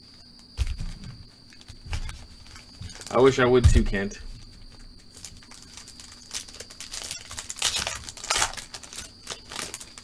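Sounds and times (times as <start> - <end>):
plastic wrapper crinkling and tearing: 2.4 - 3.2, 5.1 - 10.0.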